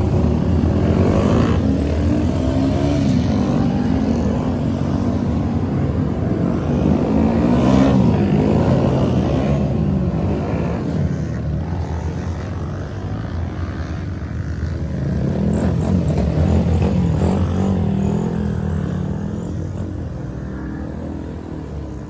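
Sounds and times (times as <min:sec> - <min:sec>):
mini bike engines buzzing: 0:00.0 - 0:22.0.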